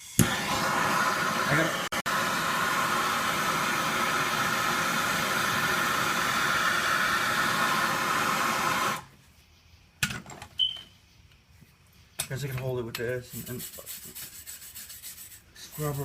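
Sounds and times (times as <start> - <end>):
loud steady hiss: 0.0 - 9.1.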